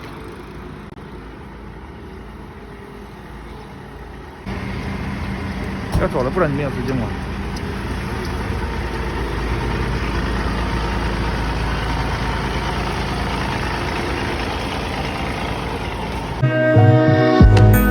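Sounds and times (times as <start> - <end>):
garbage truck engine idling: 0.0 - 16.4
music: 16.4 - 17.9.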